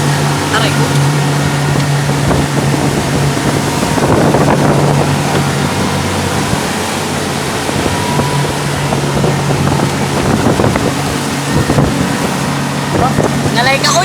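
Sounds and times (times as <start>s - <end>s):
motorboat engine running: 0.0s - 14.0s
water rushing past: 0.0s - 14.0s
wind buffeting microphone: 0.0s - 14.0s.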